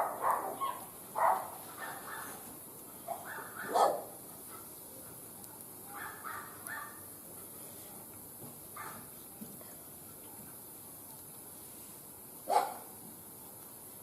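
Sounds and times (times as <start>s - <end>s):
dog barking: 0.0s - 2.4s, 3.1s - 4.7s, 5.9s - 7.0s, 8.8s - 9.1s, 12.5s - 12.9s.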